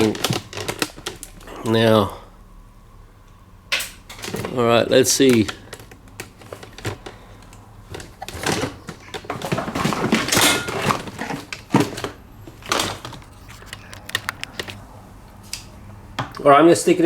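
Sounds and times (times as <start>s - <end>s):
tools clunking on workbench: 8.0s - 12.1s.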